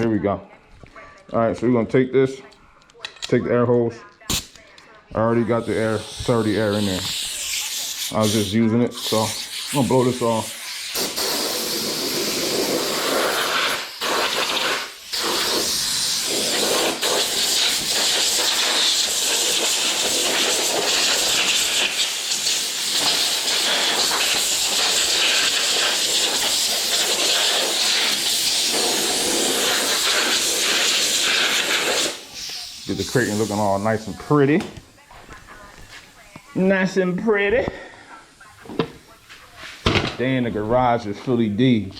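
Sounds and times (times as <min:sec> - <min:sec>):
compressed air hissing: 0:05.3 - 0:34.2.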